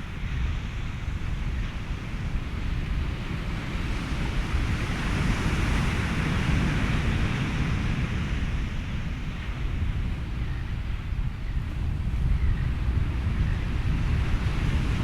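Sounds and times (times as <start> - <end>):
ocean waves: 0.0 - 11.2
wind: 0.0 - 15.0.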